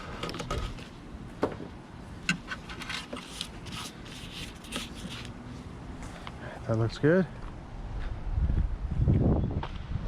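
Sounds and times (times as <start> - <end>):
blade scraping urethane: 2.4 - 5.3.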